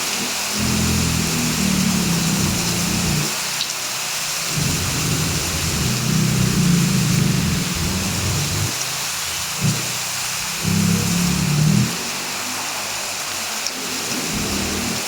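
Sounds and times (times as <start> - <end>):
heavy rain falling: 0.0 - 15.0
low rumble: 4.5 - 8.7.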